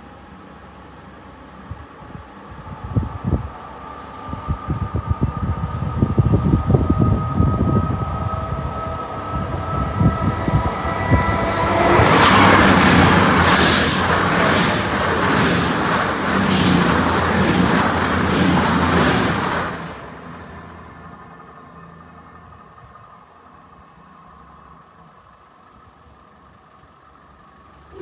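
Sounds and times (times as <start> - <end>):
train rushing past: 1.4 - 24.2
wind gusts on microphone: 1.6 - 20.1
steady high tones: 5.3 - 22.2.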